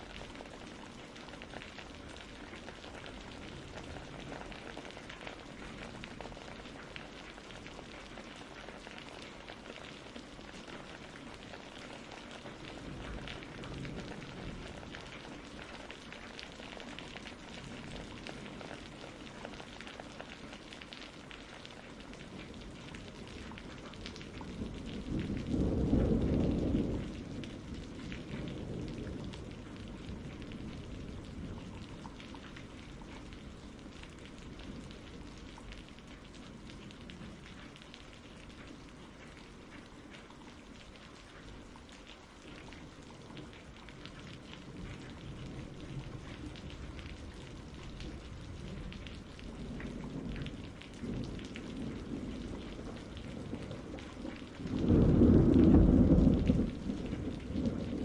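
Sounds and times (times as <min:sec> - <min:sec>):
steady rain: 0:00.0 - 0:58.0
thunder rumbling: 0:10.8 - 0:19.6, 0:22.4 - 0:39.7, 0:43.0 - 0:58.0.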